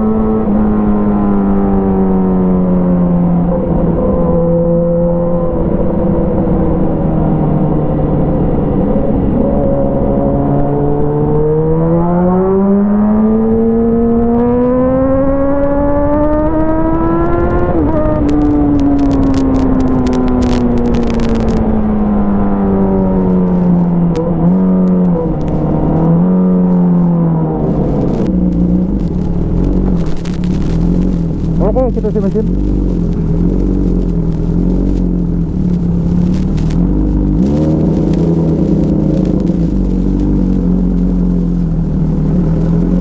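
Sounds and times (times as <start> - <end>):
motorcycle engine revving: 11.2 - 43.0
exhaust crackles: 16.6 - 43.0.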